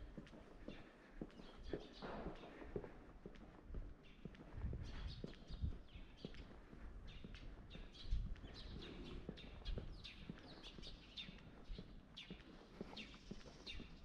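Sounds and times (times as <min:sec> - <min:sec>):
footsteps walking: 0:00.0 - 0:14.0
small birds chirping: 0:00.1 - 0:14.0.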